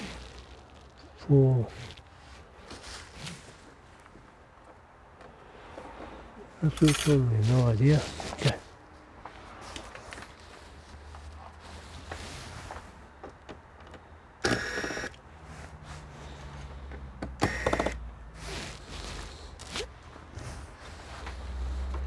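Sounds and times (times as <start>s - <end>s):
small electric motor whirring: 14.4s - 15.2s, 17.4s - 18.0s.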